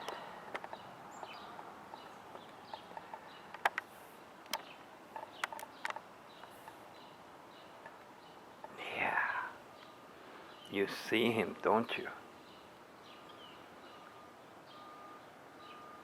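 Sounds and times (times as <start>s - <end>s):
sharp clicks and taps: 0.0s - 6.5s.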